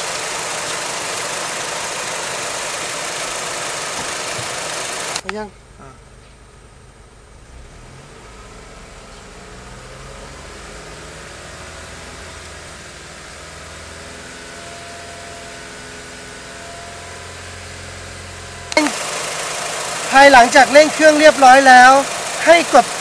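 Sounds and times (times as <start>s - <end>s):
car engine revving up: 7.2s - 23.0s.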